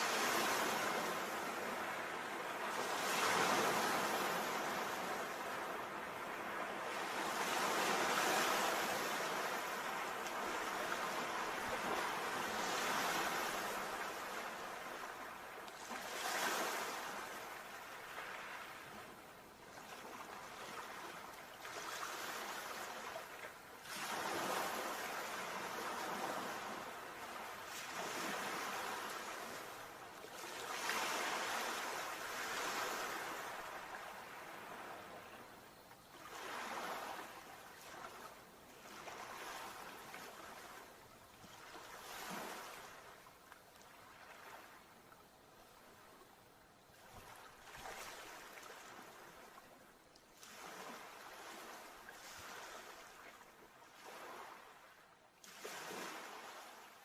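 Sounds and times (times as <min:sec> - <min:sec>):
sea waves washing: 0:00.0 - 0:19.1.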